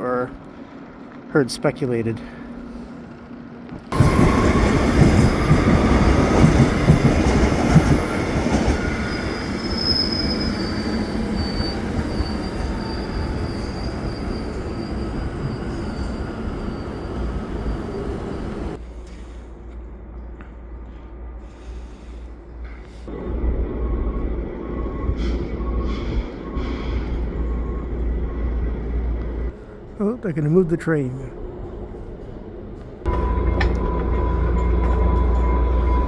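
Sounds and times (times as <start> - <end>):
train rumbling on rails: 2.2 - 36.0
high wheel squeal: 4.0 - 18.8.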